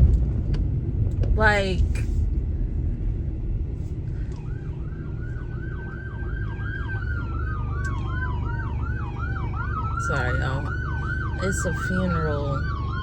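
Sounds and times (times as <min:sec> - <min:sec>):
low rumble: 0:00.0 - 0:13.0
emergency vehicle siren: 0:03.9 - 0:13.0.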